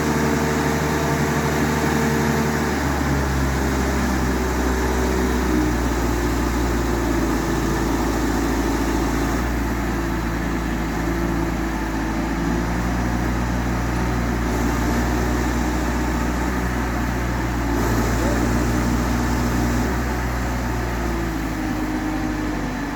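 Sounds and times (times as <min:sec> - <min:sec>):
motor droning: 0:14.5 - 0:22.5.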